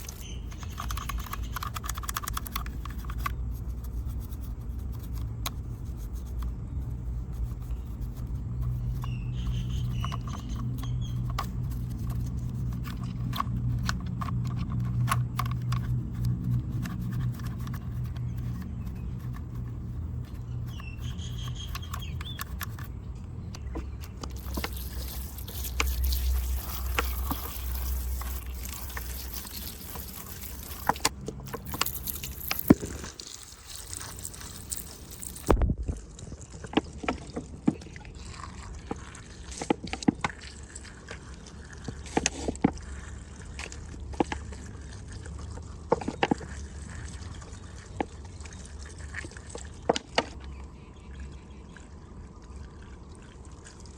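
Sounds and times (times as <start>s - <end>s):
low steady rumble: 0.0s - 53.9s
water trickling: 23.6s - 50.2s, 50.8s - 53.9s.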